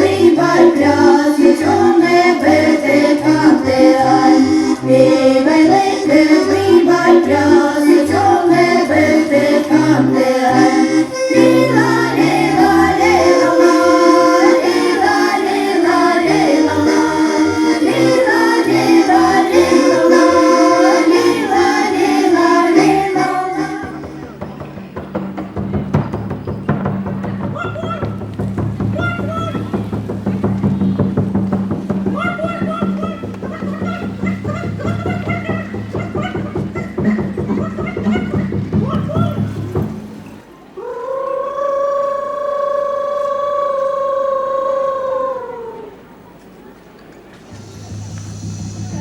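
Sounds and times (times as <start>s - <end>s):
accordion playing folk tune: 0.0s - 24.9s.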